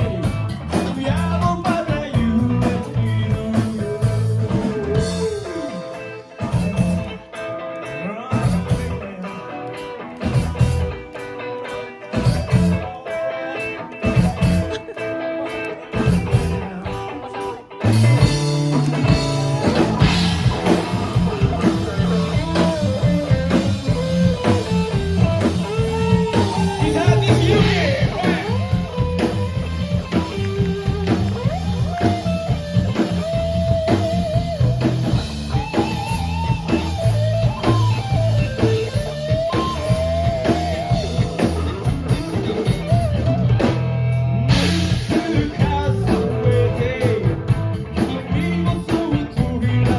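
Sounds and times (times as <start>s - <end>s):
drum kit: 0.0s - 49.9s
guitar: 0.0s - 49.9s
person singing: 0.1s - 7.0s, 12.8s - 29.4s, 44.6s - 49.9s.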